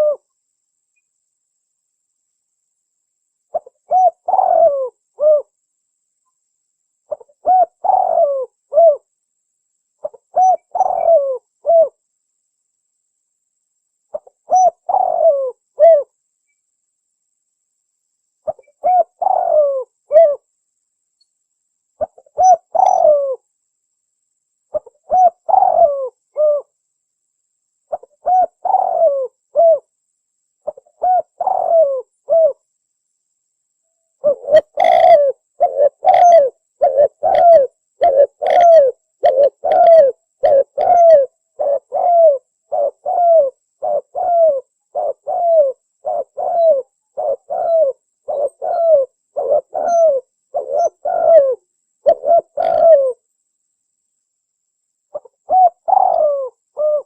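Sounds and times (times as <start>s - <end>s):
dove cooing: 0.0s - 0.3s, 3.5s - 5.5s, 7.1s - 9.1s, 10.0s - 12.0s, 14.1s - 16.1s, 18.4s - 20.5s, 22.0s - 23.4s, 24.7s - 26.7s, 27.9s - 29.9s, 30.6s - 32.6s, 34.2s - 53.2s, 55.1s - 57.0s.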